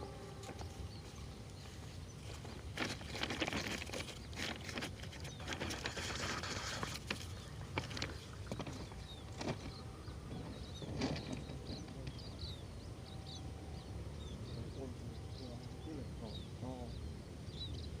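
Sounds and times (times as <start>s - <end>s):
low rumble: 0.0s - 2.2s
high bird chirps: 0.0s - 2.4s.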